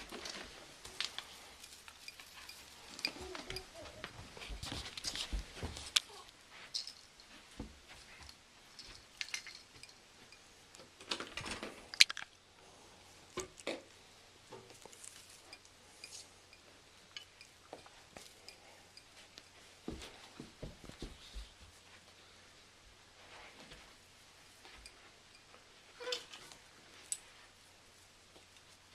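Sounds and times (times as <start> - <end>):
ornaments clinking: 0.0 - 10.9, 11.8 - 12.5, 14.8 - 20.3.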